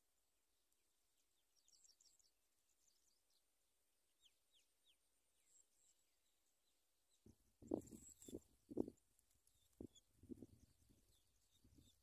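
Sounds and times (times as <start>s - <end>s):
faint high-pitched bird chirps: 1.4s - 3.5s.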